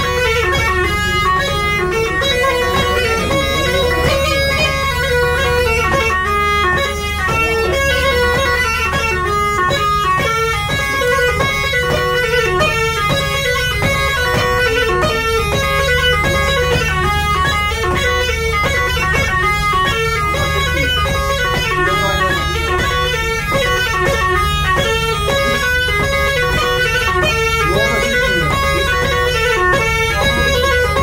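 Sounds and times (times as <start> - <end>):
bagpipe melody: 0.0 - 31.0
steady beat: 0.0 - 31.0.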